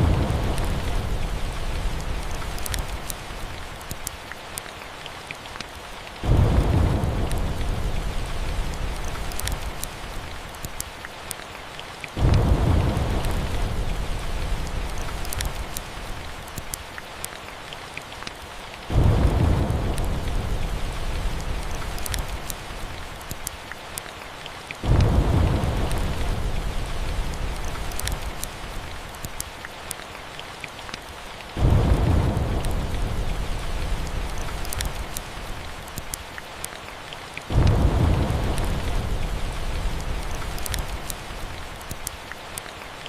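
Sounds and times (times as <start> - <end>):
thunder rolling: 0.0 - 2.5, 6.2 - 9.2, 12.2 - 15.2, 18.9 - 22.4, 24.8 - 27.9, 31.6 - 35.2, 37.5 - 41.4
steady rain: 0.0 - 43.0.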